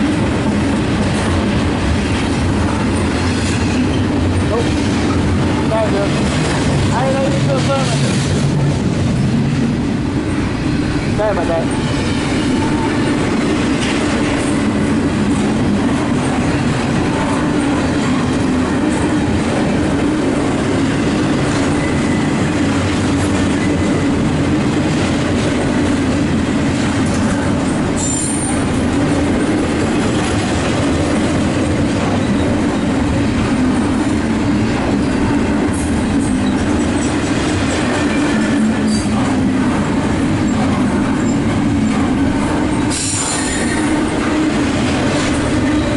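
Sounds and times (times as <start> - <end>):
freight train rumbling on rails: 0.0 - 45.9
train wheel squeal: 21.6 - 22.5, 28.0 - 28.7, 32.1 - 33.0, 36.2 - 37.3, 38.0 - 39.2, 41.2 - 42.0, 42.8 - 44.2.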